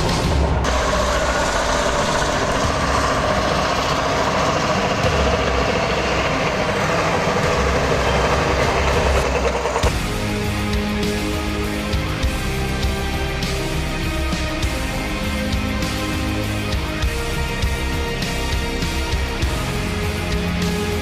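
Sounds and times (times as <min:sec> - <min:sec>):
music: 0:00.0 - 0:21.0
truck engine running under load: 0:00.1 - 0:11.5.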